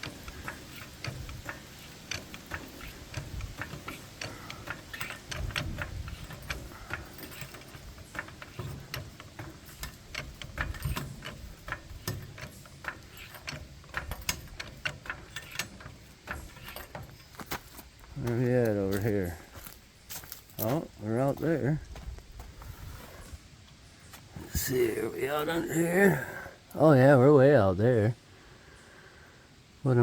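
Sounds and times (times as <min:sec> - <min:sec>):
metallic clicking and ticking: 0:00.0 - 0:20.7.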